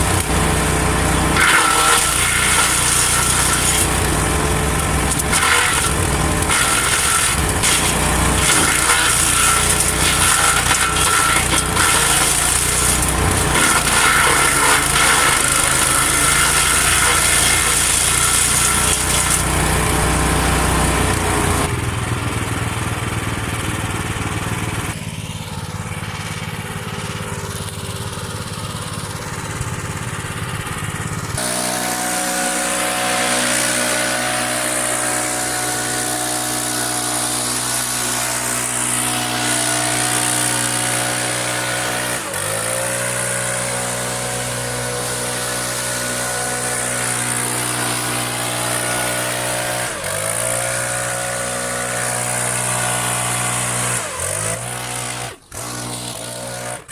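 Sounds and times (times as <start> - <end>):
wood chipper engine running: 0.0 - 56.9
branches being chipped: 1.1 - 21.6.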